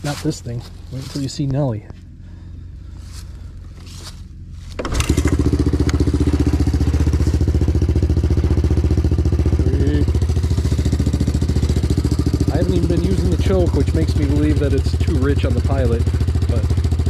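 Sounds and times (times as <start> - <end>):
low hum: 0.0 - 17.0
small engine idling: 0.0 - 17.0.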